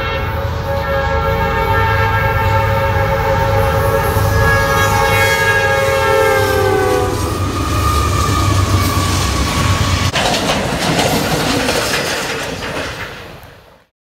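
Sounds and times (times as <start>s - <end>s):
train air horn: 0.0s - 10.0s
low train rumble: 0.0s - 13.9s
rail cars clattering past: 0.0s - 13.9s.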